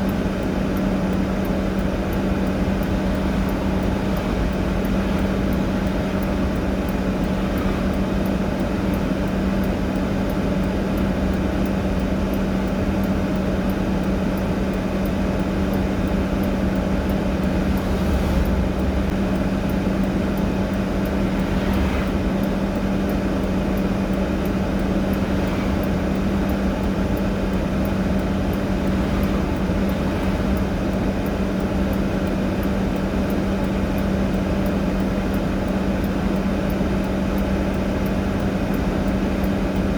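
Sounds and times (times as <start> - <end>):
faint regular ticking: 0.0 - 39.9
vehicle engine idling: 0.0 - 39.9.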